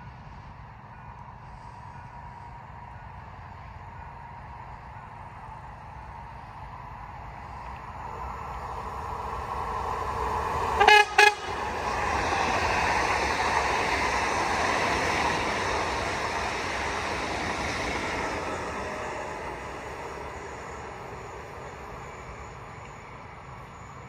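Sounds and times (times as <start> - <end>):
train rolling past: 0.0 - 24.0
train horn blasts: 10.8 - 11.8.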